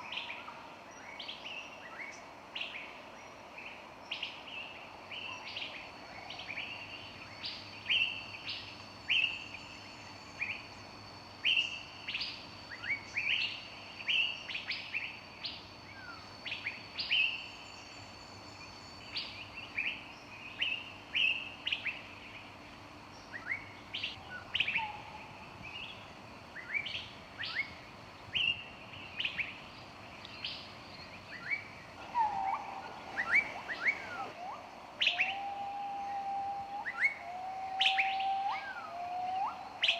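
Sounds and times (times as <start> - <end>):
songbirds chirping: 0.0 - 39.9
low whistled bird notes: 31.4 - 39.9.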